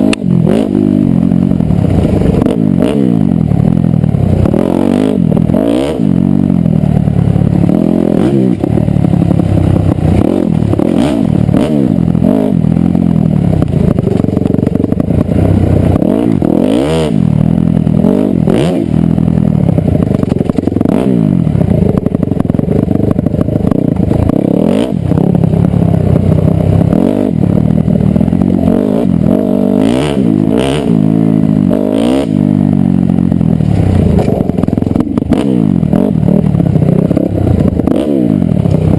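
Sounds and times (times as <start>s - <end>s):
dirt bike engine revving: 0.0s - 38.9s
sharp knocks and clatter: 19.9s - 21.1s.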